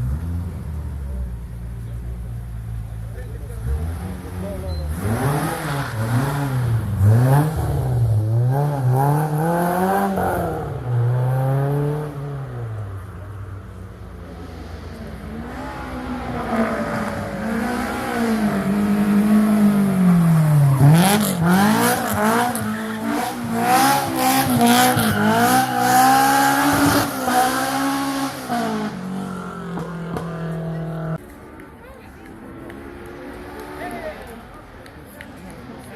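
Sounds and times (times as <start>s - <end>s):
rally car engine revving: 0.0s - 31.2s.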